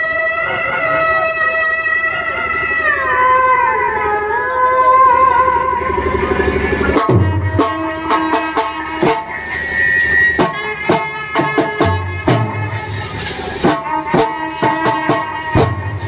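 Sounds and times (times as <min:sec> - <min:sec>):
held melody tones: 0:00.0 - 0:16.0
hand drum strokes: 0:05.2 - 0:16.0.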